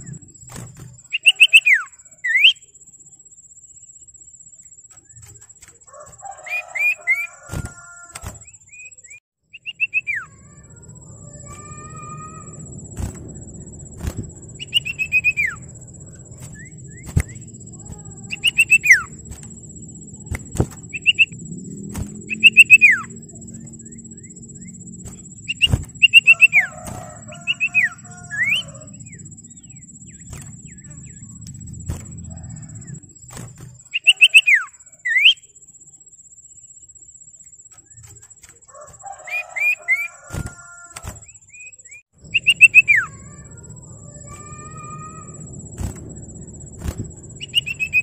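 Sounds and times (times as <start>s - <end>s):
bird whistled song: 0.0s - 2.9s, 6.4s - 13.2s, 13.8s - 33.0s, 33.8s - 35.6s, 37.8s - 45.3s, 46.7s - 48.0s
low background rumble: 10.2s - 33.9s, 42.2s - 48.0s
sharp clicks: 20.2s - 22.8s.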